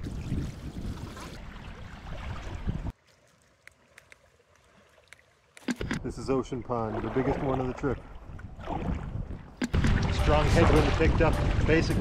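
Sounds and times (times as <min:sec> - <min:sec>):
wind buffeting microphone: 0:07.3 - 0:12.0.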